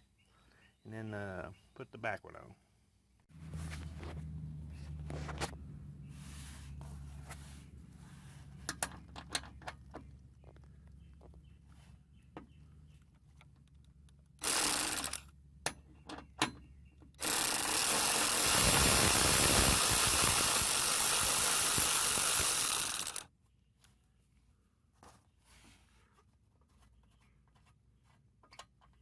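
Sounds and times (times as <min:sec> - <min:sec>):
power tool running: 0:14.4 - 0:15.2, 0:17.2 - 0:23.2.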